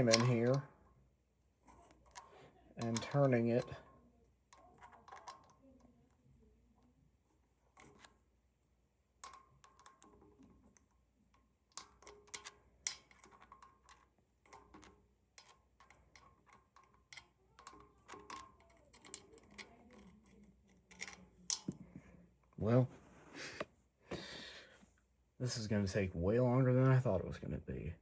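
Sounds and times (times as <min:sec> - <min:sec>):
small metal clicks and scrapes: 0:00.0 - 0:00.8, 0:01.6 - 0:06.9, 0:07.6 - 0:08.2, 0:09.2 - 0:22.2.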